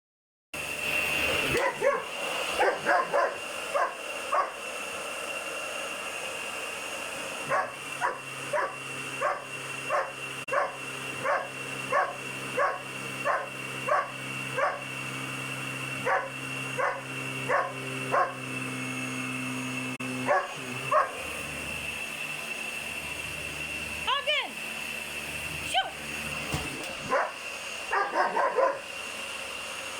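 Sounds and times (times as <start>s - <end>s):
vacuum cleaner whine: 0.6s - 29.9s
puppy barking: 1.5s - 4.6s, 7.4s - 14.8s, 16.0s - 18.4s, 20.2s - 21.2s, 27.1s - 28.9s.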